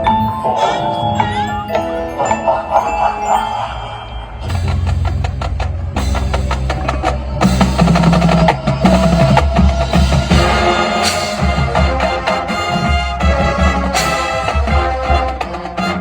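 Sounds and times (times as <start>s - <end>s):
drumline playing fast strokes: 2.6s - 16.0s
marching band playing: 4.4s - 16.0s.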